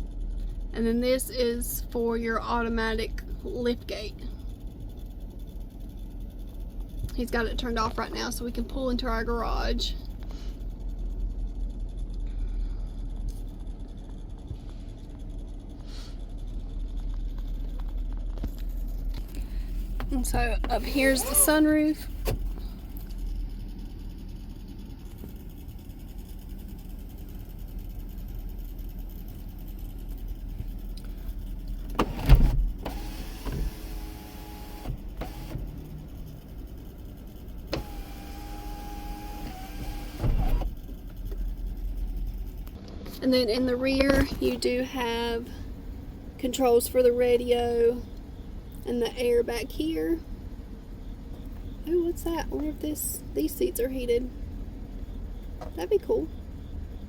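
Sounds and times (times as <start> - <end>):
low rumble inside car cabin: 0.0 - 57.0
electric sunroof motor whining: 13.2 - 42.8
sunroof panel clunking: 37.7 - 40.8.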